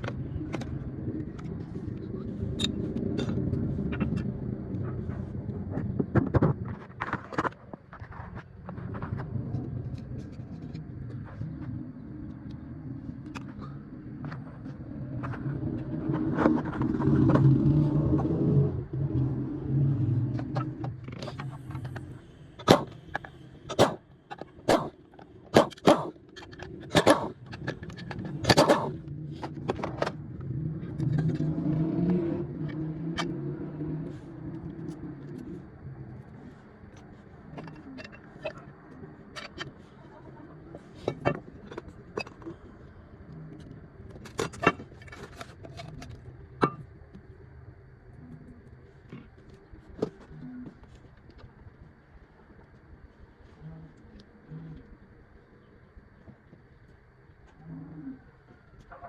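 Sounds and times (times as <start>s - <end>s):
low engine-like hum: 0.0s - 59.0s
sharp knocks or clicks: 22.6s - 24.9s, 25.5s - 26.2s, 27.0s - 27.7s, 28.4s - 29.0s.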